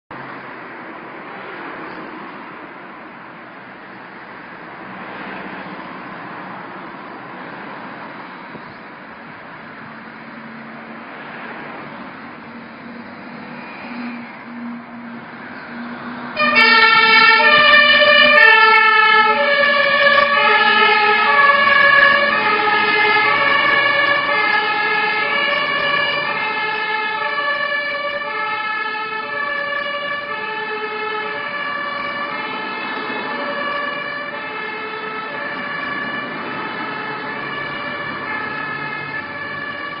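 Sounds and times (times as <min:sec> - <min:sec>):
two-tone fire truck siren: 0:12.8 - 0:40.0.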